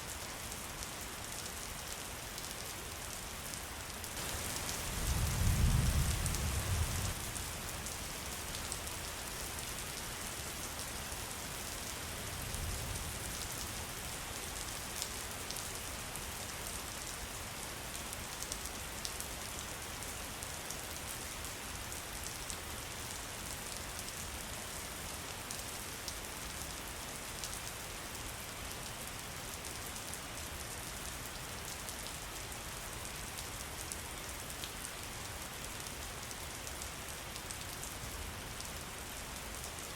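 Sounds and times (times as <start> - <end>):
steady rain falling: 0.0 - 39.9
low thunder rumble: 4.8 - 7.2.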